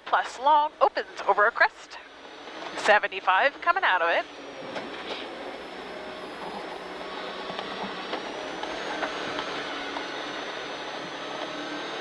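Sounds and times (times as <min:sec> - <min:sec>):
thin high whine: 0:00.2 - 0:12.0
car engine and tyre noise: 0:02.1 - 0:12.0.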